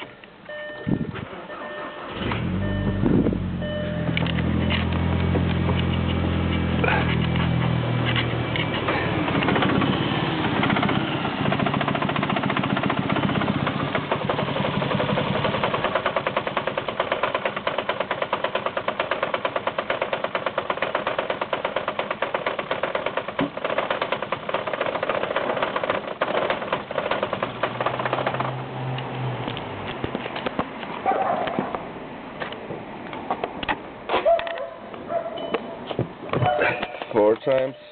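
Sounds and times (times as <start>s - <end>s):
car engine idling roughly: 6.2s - 7.5s, 8.5s - 28.5s.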